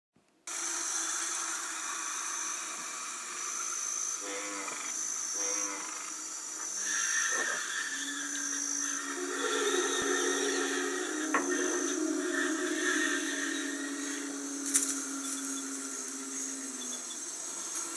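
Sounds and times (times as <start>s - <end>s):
high whistling tone: 6.7s - 17.9s.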